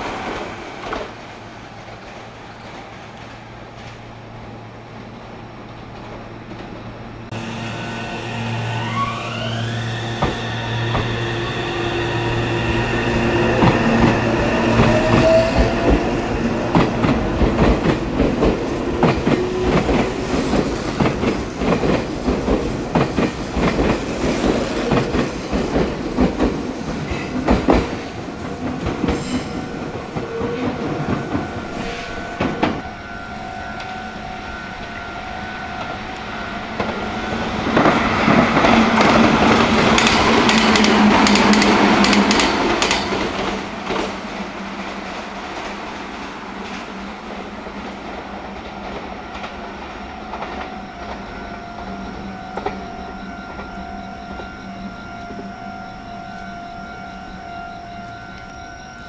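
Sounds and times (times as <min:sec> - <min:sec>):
electric train motor whine: 0:06.2 - 0:21.4, 0:49.9 - 0:59.0.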